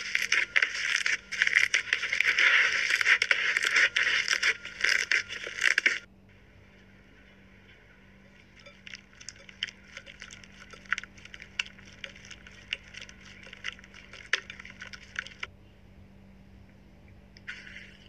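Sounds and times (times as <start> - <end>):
slime crackling and popping: 0.0 - 6.1, 8.6 - 15.5.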